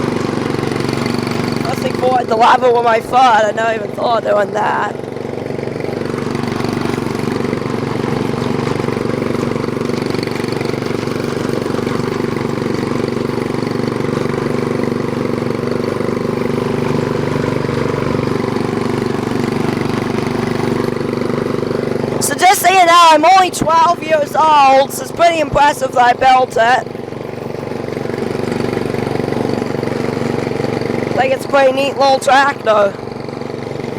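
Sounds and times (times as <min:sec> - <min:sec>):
lawnmower engine running: 0:00.0 - 0:33.9.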